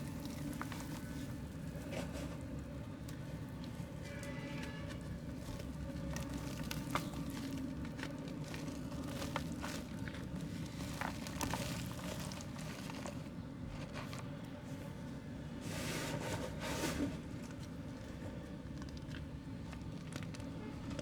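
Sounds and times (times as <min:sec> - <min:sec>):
mud crumbling by hand: 0:00.0 - 0:03.8, 0:05.1 - 0:14.6.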